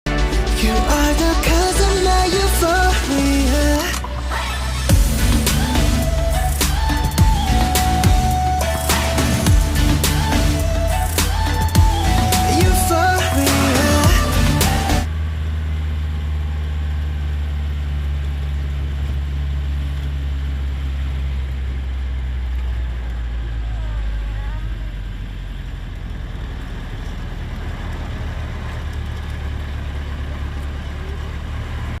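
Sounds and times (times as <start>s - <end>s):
low engine-like rumble: 0.3s - 32.0s
faint wavering whistles: 5.5s - 15.1s.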